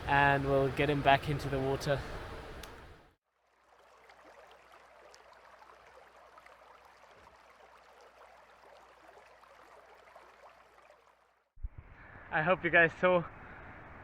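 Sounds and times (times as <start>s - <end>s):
steady low hum: 0.0s - 3.1s
muffled stream rushing underwater: 0.0s - 11.3s
faint ticks: 2.0s - 2.9s.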